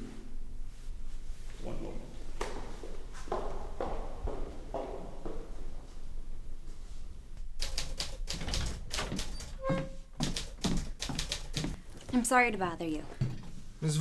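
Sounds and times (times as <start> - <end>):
rapid clicking and tapping: 7.6 - 9.5, 10.2 - 11.8.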